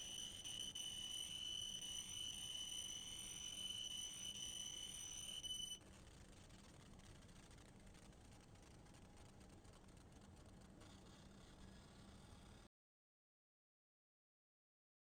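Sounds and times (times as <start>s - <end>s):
laser cutter high-pitched whine: 0.0s - 5.8s.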